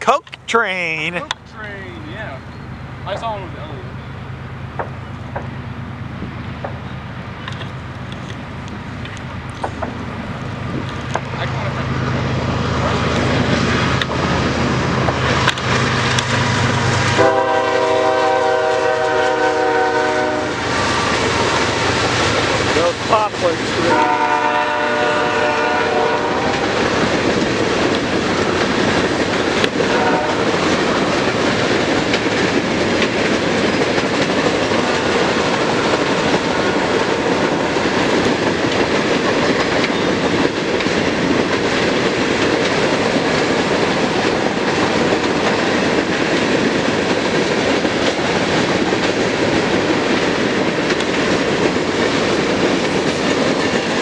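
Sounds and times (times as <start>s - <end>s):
freight train wheel clatter: 1.2s - 54.0s
locomotive horn chord: 17.2s - 20.6s, 23.8s - 26.8s, 29.9s - 30.6s.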